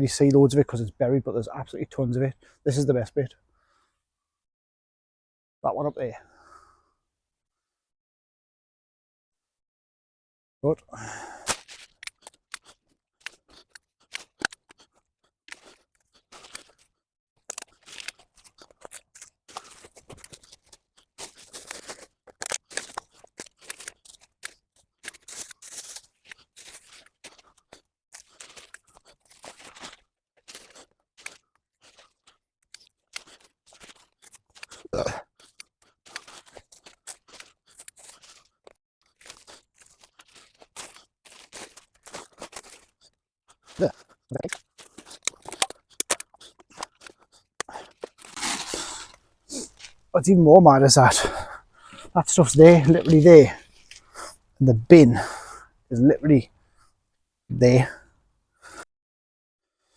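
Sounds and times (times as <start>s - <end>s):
litter picker crunching in dry leaves: 39.1s - 42.9s, 47.9s - 50.0s.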